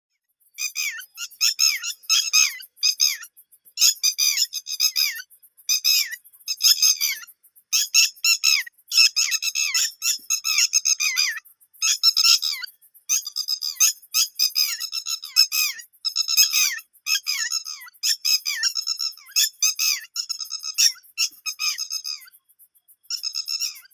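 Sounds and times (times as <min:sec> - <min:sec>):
young birds chirping: 0:00.3 - 0:23.9.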